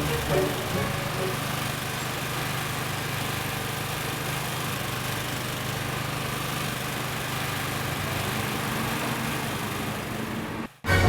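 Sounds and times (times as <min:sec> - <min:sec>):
motor humming with hiss: 0:00.0 - 0:03.1.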